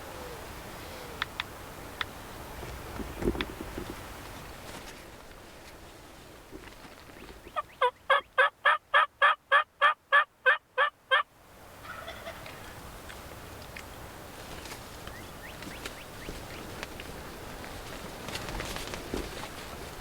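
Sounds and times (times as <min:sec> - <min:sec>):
wind: 0:00.0 - 0:20.0
turkey yelping: 0:07.4 - 0:12.8.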